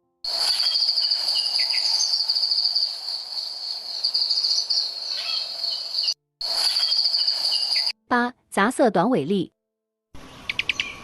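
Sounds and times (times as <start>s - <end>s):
crickets trilling: 0.3s - 7.9s.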